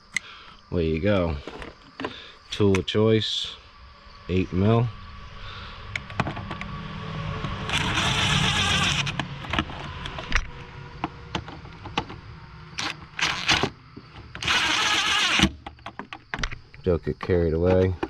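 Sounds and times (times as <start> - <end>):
steady low hum: 0.0 - 15.4
power driver whirring: 7.5 - 10.5, 12.8 - 15.6.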